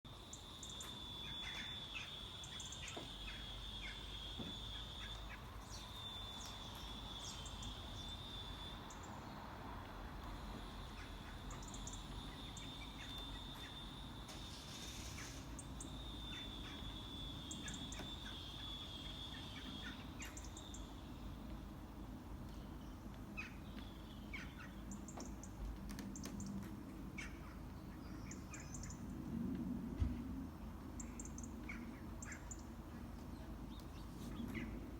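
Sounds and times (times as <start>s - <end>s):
wavering high whistle: 0.1s - 9.5s, 10.1s - 21.5s
small birds chirping: 0.2s - 9.5s, 10.2s - 14.2s, 14.8s - 21.6s, 31.0s - 34.9s.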